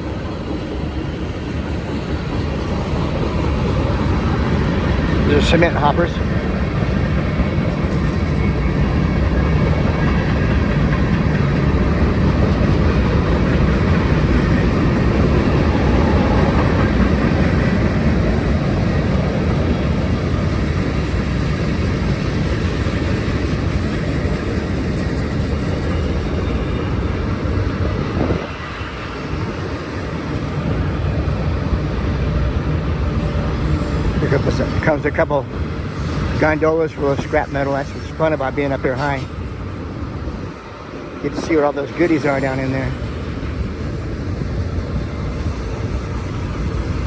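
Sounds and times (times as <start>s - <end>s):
train wheels rumbling on rail: 0.0s - 47.0s.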